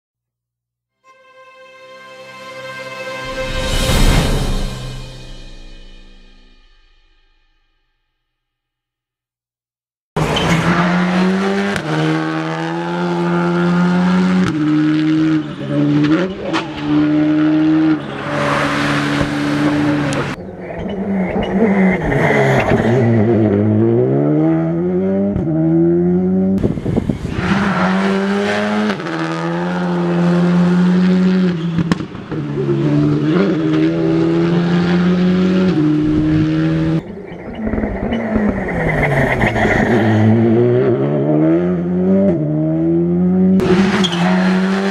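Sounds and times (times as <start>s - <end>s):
rally car engines revving high: 10.2s - 44.9s
rushing tyre noise: 10.2s - 44.9s.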